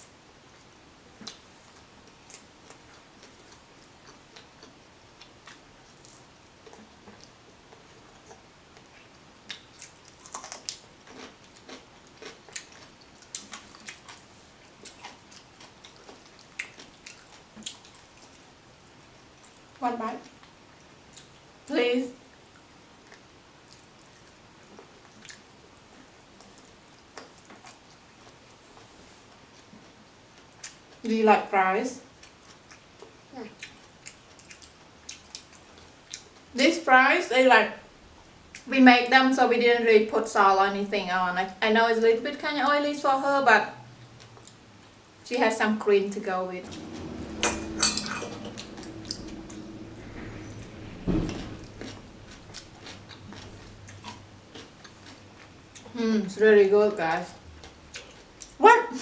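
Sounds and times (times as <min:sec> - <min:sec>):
chewing and eating clicks: 0:02.1 - 0:18.5, 0:23.0 - 0:25.5, 0:32.2 - 0:36.4, 0:51.3 - 0:56.0, 0:57.6 - 0:58.6.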